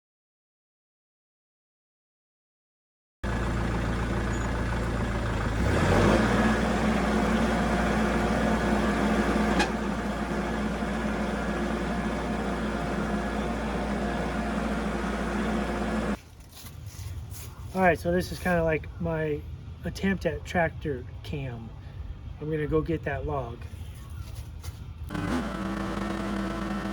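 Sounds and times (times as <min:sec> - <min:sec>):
tractor engine revving: 0:03.2 - 0:16.2, 0:25.1 - 0:26.9.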